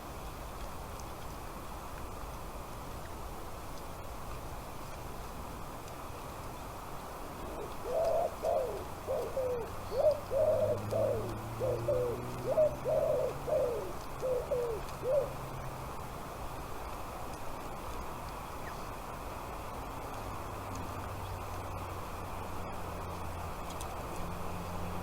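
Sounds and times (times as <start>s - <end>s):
bird calling: 7.4s - 15.4s.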